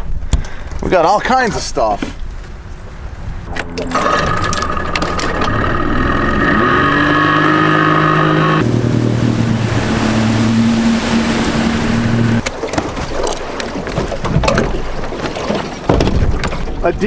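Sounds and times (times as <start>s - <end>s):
boat motor running: 2.6s - 12.5s.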